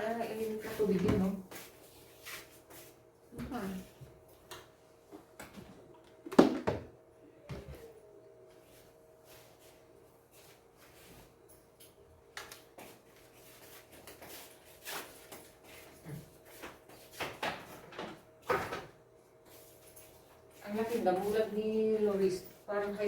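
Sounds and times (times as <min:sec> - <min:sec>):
faint steady hum: 0:00.0 - 0:17.4.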